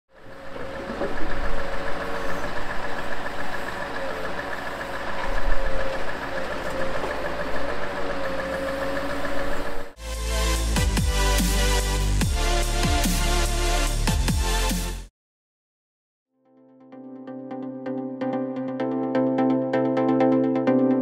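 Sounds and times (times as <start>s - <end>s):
wavering whine: 0.1s - 10.0s
truck diesel engine running: 0.1s - 14.6s
electronic music with heavy beat: 10.0s - 15.1s, 17.7s - 21.0s.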